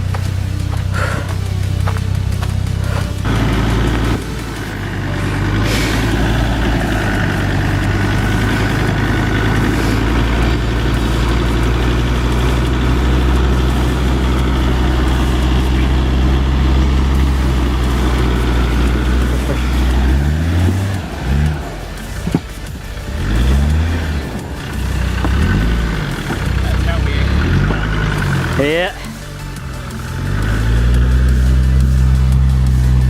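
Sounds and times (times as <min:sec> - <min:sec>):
vehicle engine running at low revs: 0:00.0 - 0:33.0.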